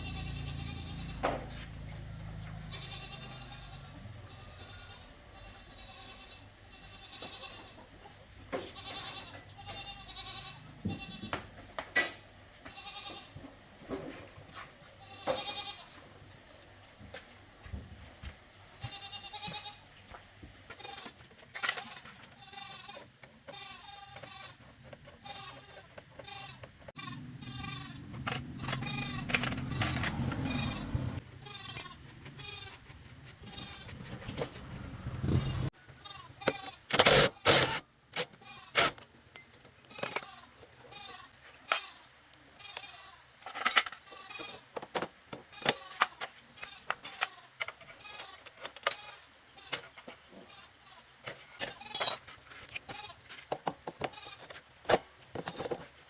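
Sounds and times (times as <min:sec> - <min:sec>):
goats bleating: 0:00.0 - 0:07.8, 0:08.6 - 0:11.4, 0:12.6 - 0:13.3, 0:15.0 - 0:16.0, 0:18.8 - 0:19.8, 0:25.2 - 0:32.8
low rumble: 0:27.0 - 0:31.2.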